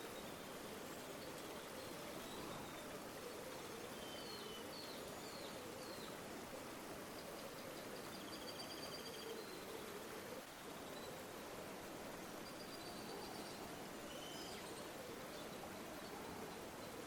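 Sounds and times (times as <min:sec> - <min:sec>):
river water flowing: 0:00.0 - 0:17.0
faint bird chirps: 0:03.5 - 0:06.2, 0:07.1 - 0:09.9, 0:12.4 - 0:17.0.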